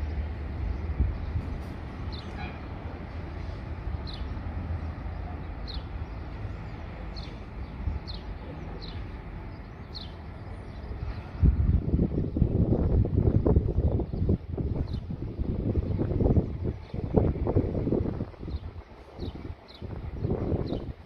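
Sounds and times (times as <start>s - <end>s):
bird chirping: 4.0s - 11.0s.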